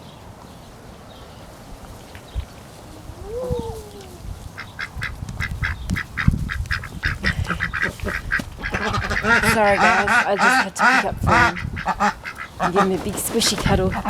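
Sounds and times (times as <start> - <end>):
ducks quacking: 4.6 - 14.0.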